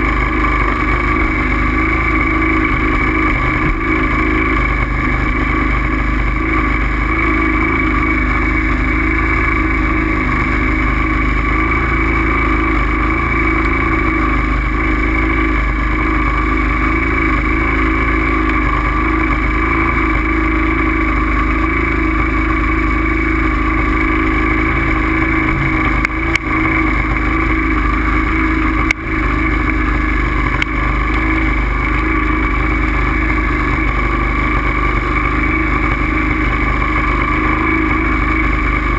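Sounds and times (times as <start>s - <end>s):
bike riding drone and rumble: 0.0s - 38.9s.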